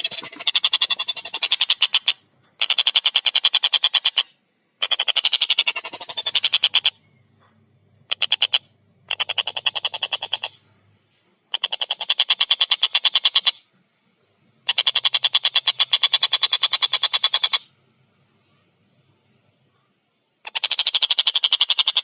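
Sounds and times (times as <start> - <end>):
kingfisher chattering call: 0.0 - 4.2, 4.8 - 7.0, 8.1 - 10.6, 14.7 - 17.7.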